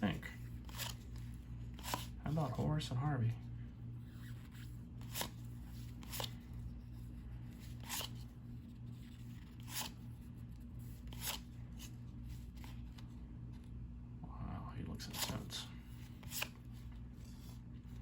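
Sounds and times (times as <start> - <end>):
steady low hum: 0.0 - 18.0
cardboard cards swishing: 15.1 - 18.0.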